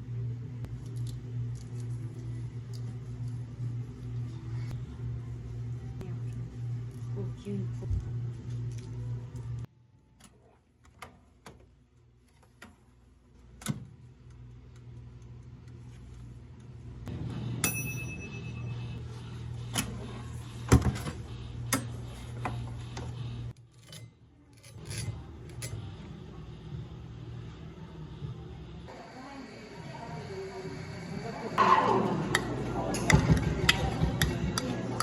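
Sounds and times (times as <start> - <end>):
machine hum: 14.0 - 23.6, 25.1 - 35.0
clicks and knocks of drink-making: 32.3 - 35.0.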